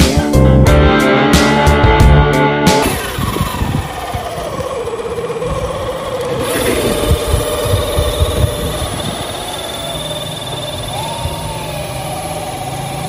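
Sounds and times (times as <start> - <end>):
toy car electric motor whining: 2.8 - 13.0
wind buffeting microphone: 2.8 - 13.0.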